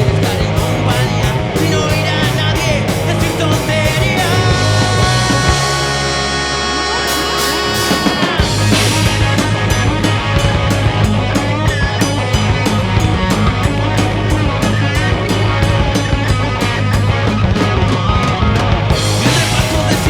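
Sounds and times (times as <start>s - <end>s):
drums keeping a steady beat: 0.0s - 20.0s
live rock band playing: 0.0s - 20.0s
ringing guitar chord: 3.8s - 14.2s.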